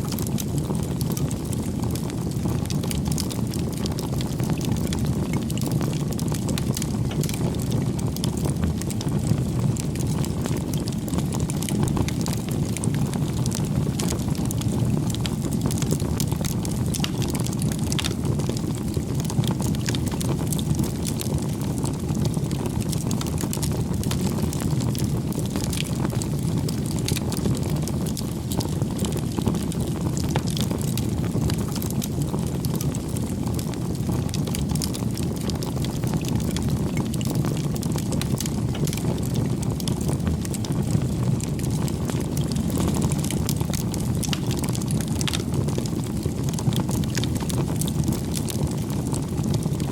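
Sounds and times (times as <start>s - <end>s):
fire crackling and popping: 0.0s - 49.9s
wood fire burning: 0.0s - 49.9s.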